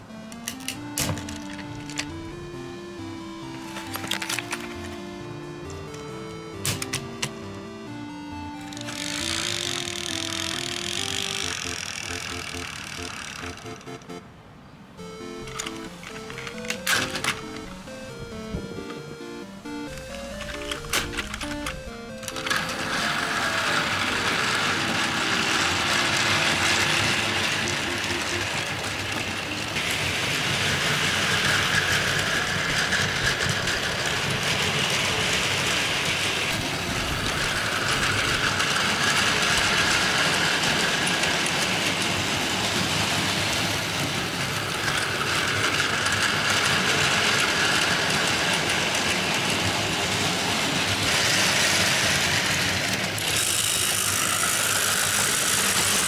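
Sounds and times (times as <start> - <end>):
toy train motor whir: 8.6 - 13.9, 20.5 - 56.0
plastic wheels rattling on track: 8.7 - 13.6, 20.4 - 56.0.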